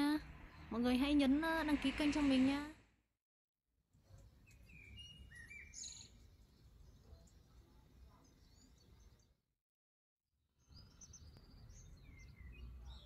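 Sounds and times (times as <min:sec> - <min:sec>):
faint bird chirps: 0:04.0 - 0:09.4, 0:10.6 - 0:13.0.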